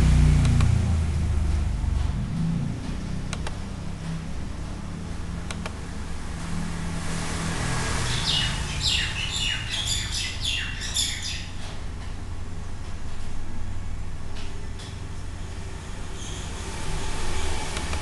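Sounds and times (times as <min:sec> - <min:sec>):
bird chirping: 0:08.0 - 0:11.6.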